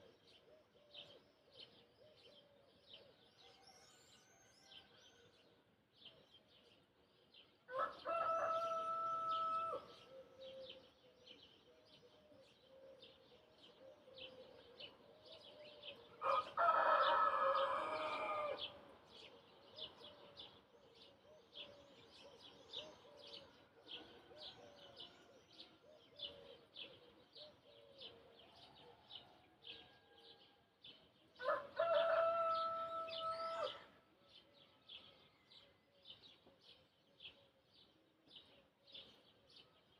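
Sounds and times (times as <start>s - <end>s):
rooster crowing: 7.7s - 9.9s, 16.2s - 18.7s, 31.4s - 33.9s.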